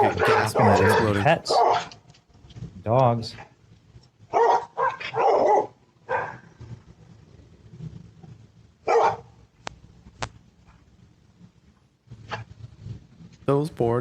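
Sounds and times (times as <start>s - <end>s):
dogs barking: 0.0s - 1.9s, 4.3s - 6.4s, 8.9s - 9.3s.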